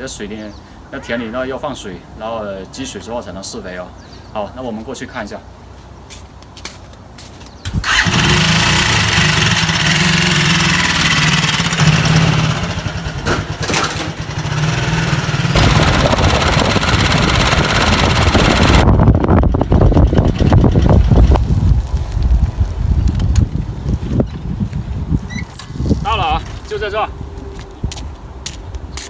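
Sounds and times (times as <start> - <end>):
wind rumble on microphone: 7.6 - 8.1, 15.5 - 29.0
small motorcycle engine: 7.7 - 21.3.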